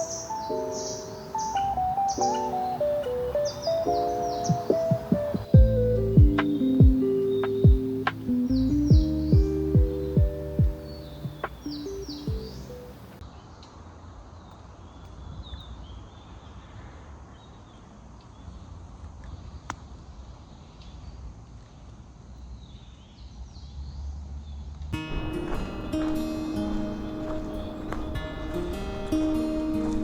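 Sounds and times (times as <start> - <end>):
faint bird chirps: 0.0 - 13.2.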